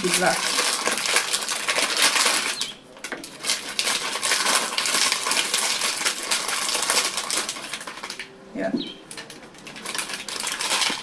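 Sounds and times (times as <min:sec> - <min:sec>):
small hard objects clattering: 0:00.0 - 0:11.0.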